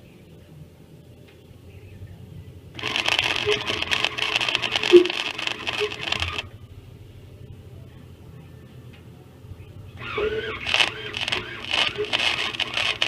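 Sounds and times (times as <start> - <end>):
welder arc crackling: 2.7 - 7.0, 9.9 - 13.0.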